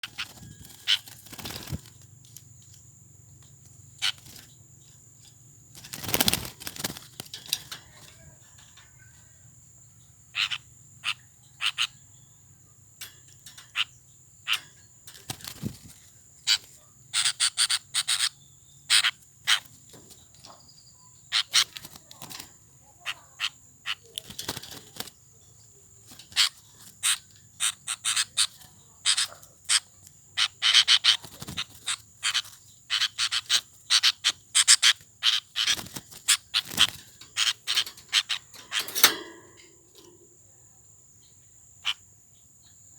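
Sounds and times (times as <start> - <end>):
bird flapping in cage: 0.0 - 2.8, 3.6 - 8.9, 14.5 - 16.8, 19.0 - 20.5, 21.4 - 22.7, 23.9 - 29.8, 30.7 - 40.2.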